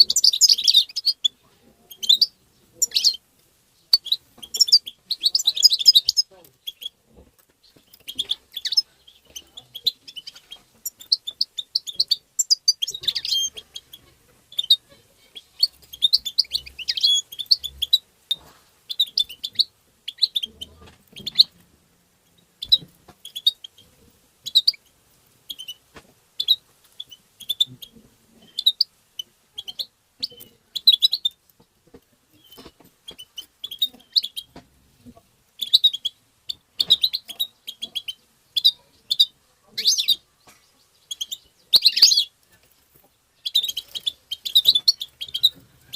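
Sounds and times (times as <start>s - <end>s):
finch twittering: 0.0s - 3.2s, 3.9s - 7.0s, 7.6s - 21.6s, 22.3s - 25.8s, 26.4s - 31.4s, 32.3s - 34.6s, 35.6s - 42.4s, 43.3s - 45.9s.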